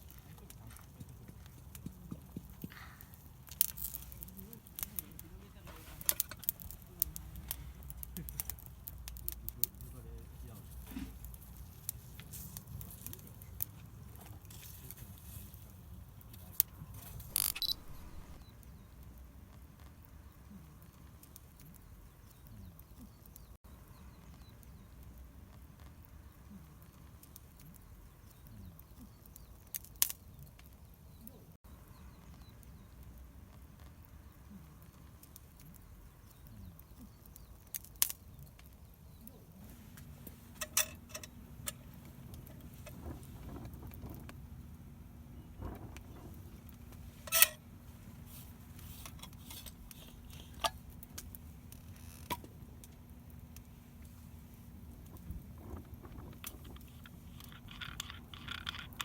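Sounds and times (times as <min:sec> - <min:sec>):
low background rumble: 0:00.0 - 0:21.1, 0:38.3 - 0:59.0.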